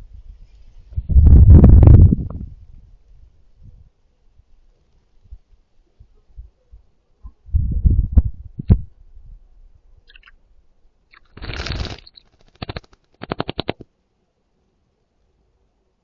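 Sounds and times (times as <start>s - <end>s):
wet wings fluttering: 11.1s - 13.8s.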